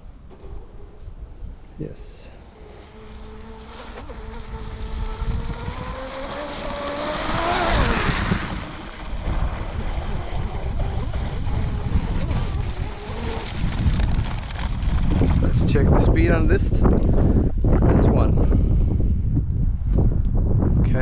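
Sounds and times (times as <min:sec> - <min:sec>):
wind buffeting microphone: 0:00.0 - 0:21.0
electric boat motor whine: 0:02.4 - 0:15.3.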